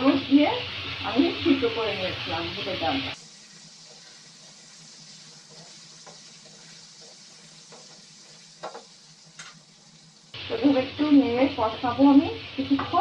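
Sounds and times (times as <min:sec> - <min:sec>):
faint sizzle of frying: 0:00.0 - 0:13.0
spatula scraping and clicking on pan: 0:03.4 - 0:10.0.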